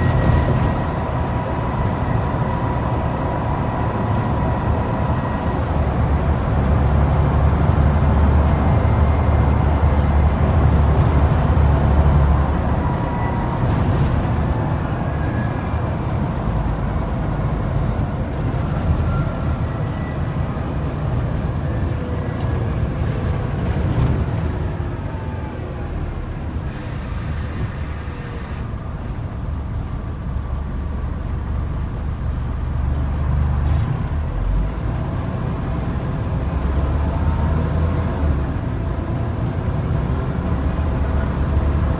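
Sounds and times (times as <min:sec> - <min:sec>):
bus diesel engine pulling: 0:00.0 - 0:41.9
air brakes hissing: 0:26.6 - 0:28.8.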